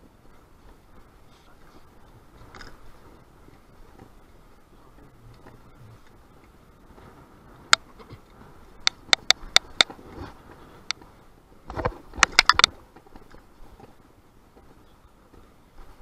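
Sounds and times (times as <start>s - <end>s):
faint low background noise: 0.0s - 16.0s
sharp clicks: 8.8s - 9.9s, 11.7s - 12.7s.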